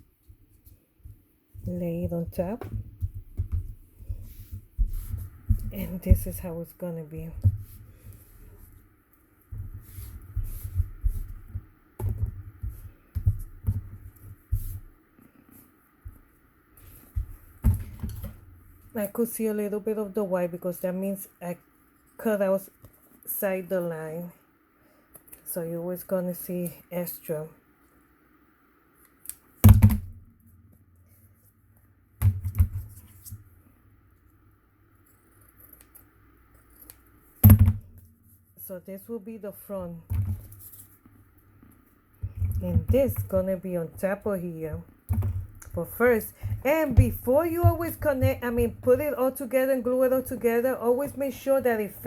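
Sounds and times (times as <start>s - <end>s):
cardboard taps and knocks: 2.5s - 6.3s
dull thumps on tabletop: 42.2s - 49.2s.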